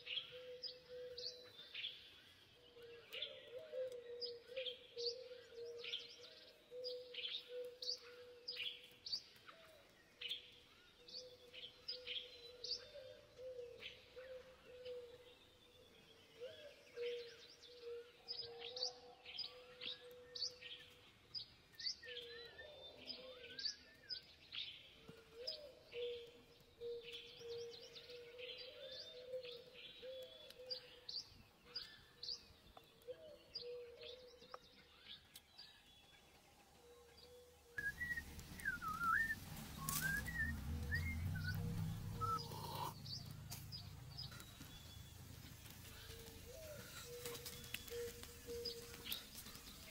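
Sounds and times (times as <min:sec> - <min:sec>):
forest birds chirping: 0:00.0 - 0:49.9
low rumble: 0:38.2 - 0:45.8.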